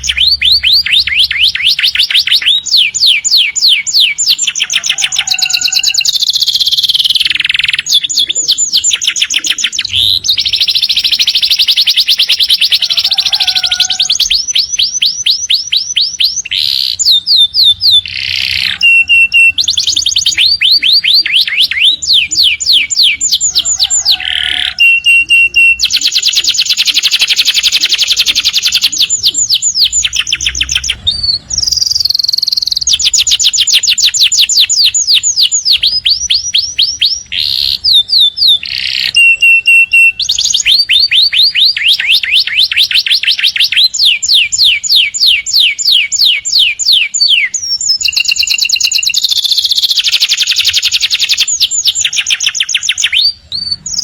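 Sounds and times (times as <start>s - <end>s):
canary singing fast trills: 0.0s - 54.0s.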